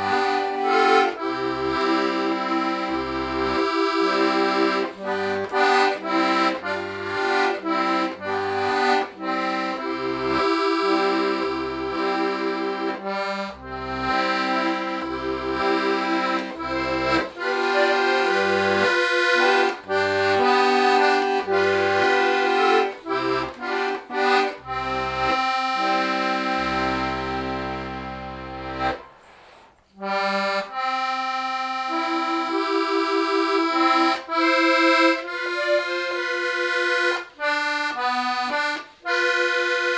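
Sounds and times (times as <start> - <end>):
button accordion playing folk melody: 0.0 - 39.9.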